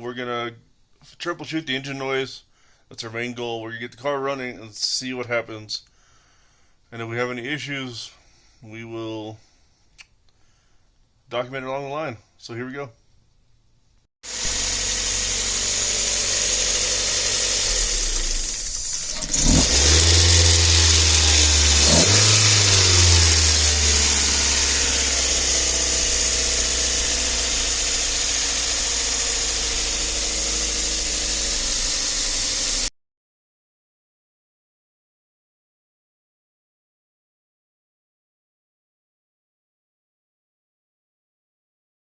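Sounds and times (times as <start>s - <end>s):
car engine idling: 14.3s - 32.9s
car engine starting and revving: 14.3s - 32.9s.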